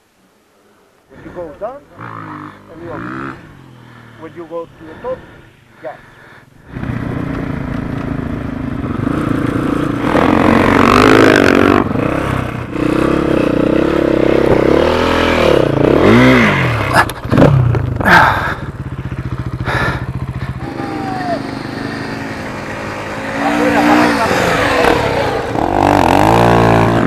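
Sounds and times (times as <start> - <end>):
dirt bike engine revving: 1.2 - 5.5, 6.6 - 27.0.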